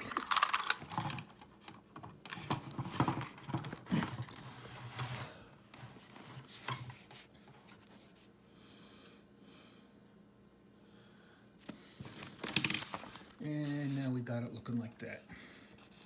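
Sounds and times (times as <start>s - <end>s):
plastic track pieces clicking: 0.0s - 1.1s.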